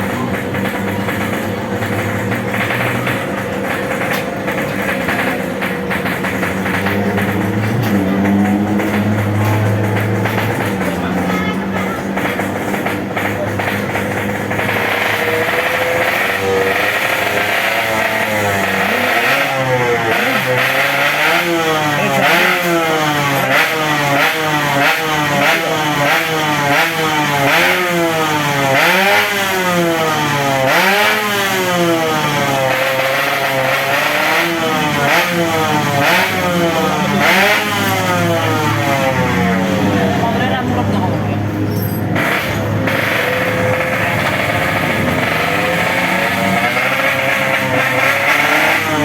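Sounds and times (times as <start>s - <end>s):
motorcycles revving hard: 0.0s - 49.0s.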